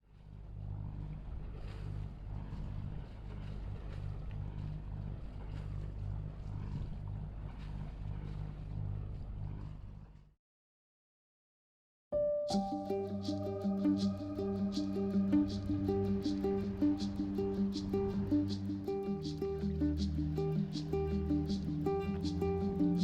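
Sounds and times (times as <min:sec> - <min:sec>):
water: 0:00.0 - 0:10.2, 0:12.6 - 0:23.0
boat engine droning: 0:00.3 - 0:09.8, 0:12.6 - 0:23.0
wind noise: 0:12.6 - 0:23.0.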